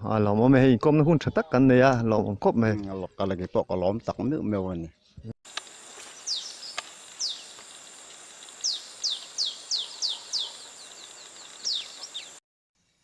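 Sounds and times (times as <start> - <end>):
high-pitched background hiss: 5.5 - 13.0.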